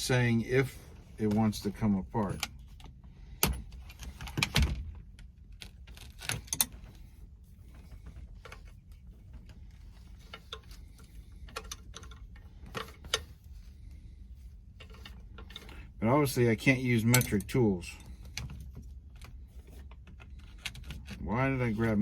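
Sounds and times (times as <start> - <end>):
wrenches clinking on metal: 16.8 - 18.2.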